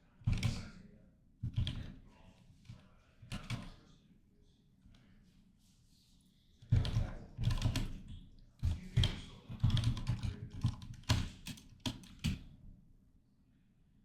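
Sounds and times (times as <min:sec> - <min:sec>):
typing on a computer keyboard: 0:01.5 - 0:02.0, 0:03.3 - 0:03.8, 0:06.7 - 0:12.5.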